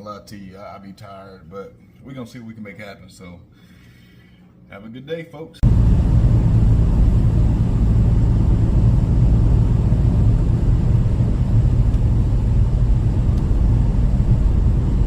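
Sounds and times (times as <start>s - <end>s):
truck engine droning: 5.6s - 15.0s.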